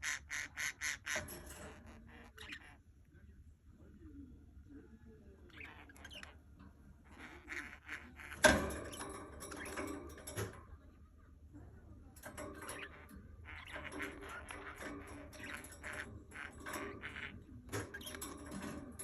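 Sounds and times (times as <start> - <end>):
budgerigar chirping: 0.0 - 2.8, 5.5 - 6.4, 7.0 - 8.7.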